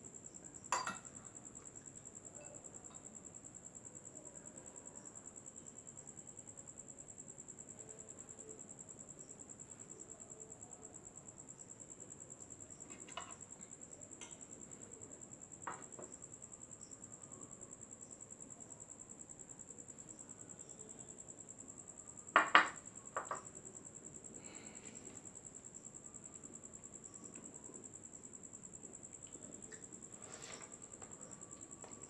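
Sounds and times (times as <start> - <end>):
crickets chirping: 0.0 - 32.0
dishes knocking and clinking: 0.7 - 1.2, 12.9 - 13.4, 22.4 - 23.5.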